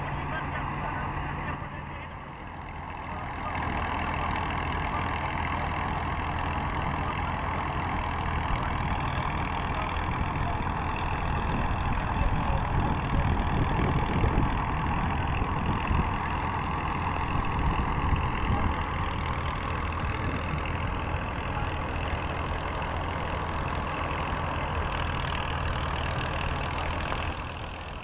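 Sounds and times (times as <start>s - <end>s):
engine idling: 0.0s - 28.0s.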